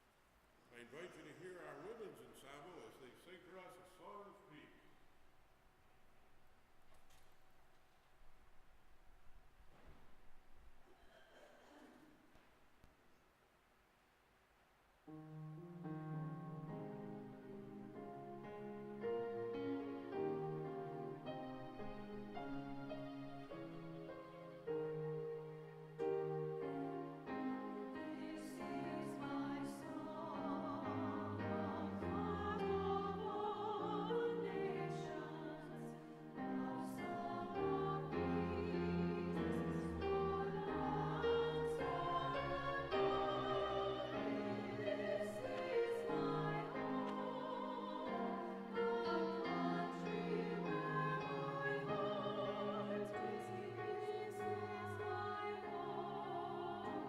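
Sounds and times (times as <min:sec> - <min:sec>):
women's choir singing: 0:16.8 - 0:57.0.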